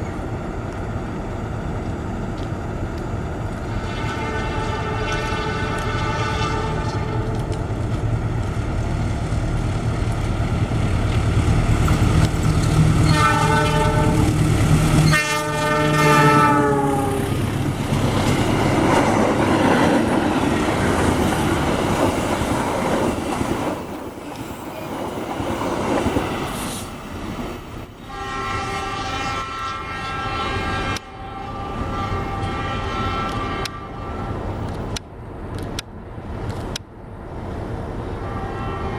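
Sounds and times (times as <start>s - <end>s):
locomotive engine rumbling: 0.0s - 38.8s
wheels rushing on rails: 0.0s - 38.9s
train horn: 3.6s - 7.5s, 13.0s - 17.6s, 28.0s - 35.0s, 38.2s - 38.9s.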